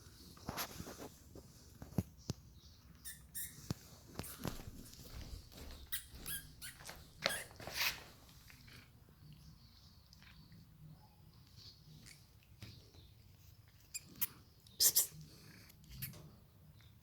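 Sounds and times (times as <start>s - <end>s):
mouse squeaking: 3.0s - 4.4s, 5.9s - 7.6s
light knocks and scuffles: 3.7s - 8.2s.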